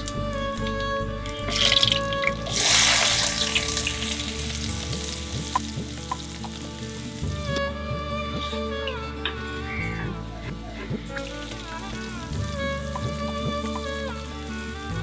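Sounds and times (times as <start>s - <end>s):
soft background music: 0.0s - 15.0s
hot oil sizzling: 1.5s - 7.3s, 11.2s - 14.8s.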